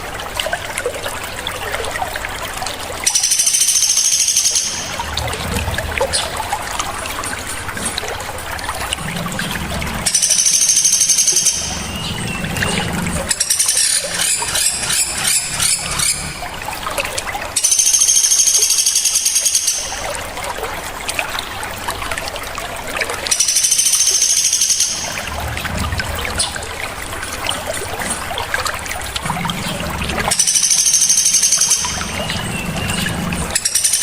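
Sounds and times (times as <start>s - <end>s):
trickling water: 0.0s - 34.0s
songbirds trilling: 3.0s - 6.5s, 9.3s - 16.8s, 23.3s - 25.4s, 29.3s - 34.0s
bird chattering: 3.1s - 5.0s, 10.1s - 12.4s, 13.3s - 16.4s, 23.3s - 25.2s, 30.3s - 34.0s.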